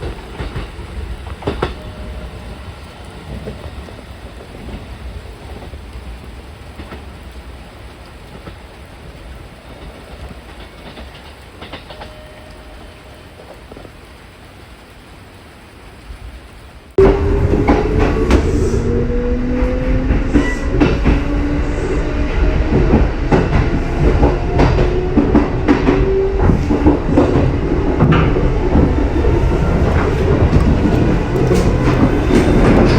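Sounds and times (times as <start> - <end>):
wheels clicking over rail joints: 0.0 - 14.3, 22.5 - 32.9
low train rumble: 0.0 - 32.9.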